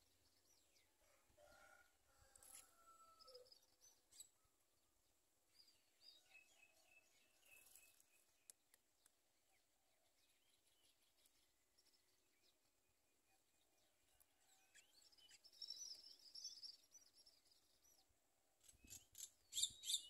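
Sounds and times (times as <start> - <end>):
faint bird chirps: 13.2 - 20.0.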